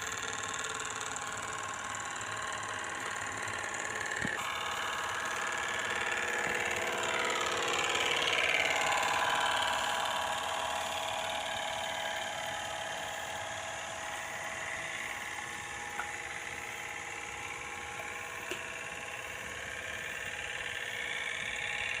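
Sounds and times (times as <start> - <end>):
motor whine: 0.0 - 22.0.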